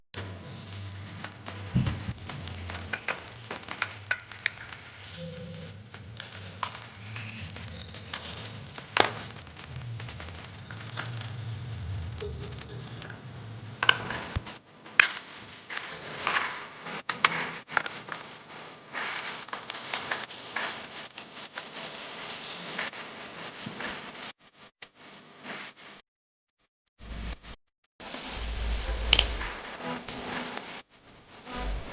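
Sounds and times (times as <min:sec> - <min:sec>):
low hum: 0:00.2 - 0:14.6, 0:27.0 - 0:29.7, 0:31.5 - 0:31.9.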